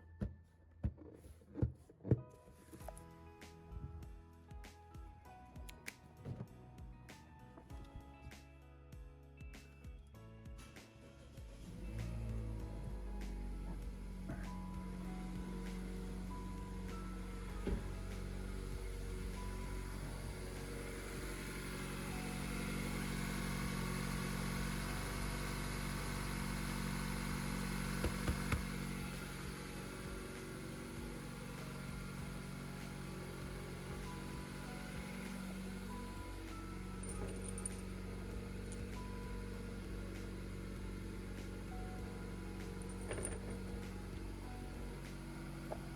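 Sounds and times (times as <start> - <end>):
car engine idling: 11.6 - 45.9.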